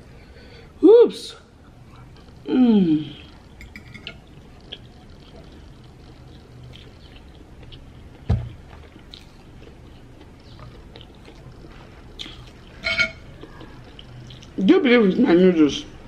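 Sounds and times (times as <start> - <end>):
chewing and wet mouth sounds: 3.2 - 14.7
dull thump: 8.3 - 8.6.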